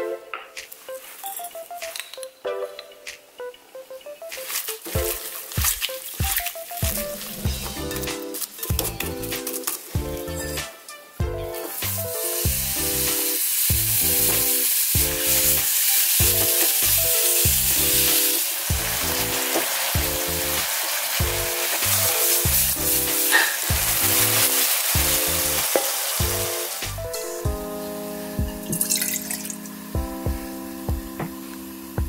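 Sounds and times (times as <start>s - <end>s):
background music with steady beat: 0.0s - 32.0s
meat sizzling in a wok: 11.6s - 29.9s.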